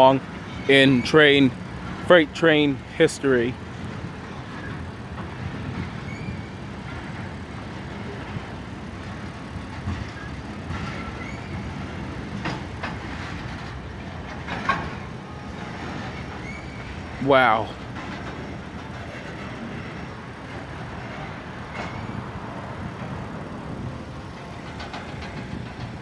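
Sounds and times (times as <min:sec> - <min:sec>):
train wheels rumbling on rails: 0:00.0 - 0:26.0
faint brief squeals: 0:06.1 - 0:06.6, 0:16.3 - 0:17.6.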